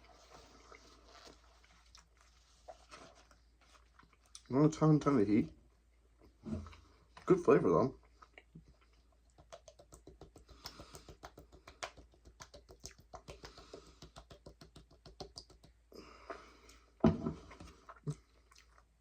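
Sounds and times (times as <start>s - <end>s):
chewing with wet crunches: 17.7s - 19.0s.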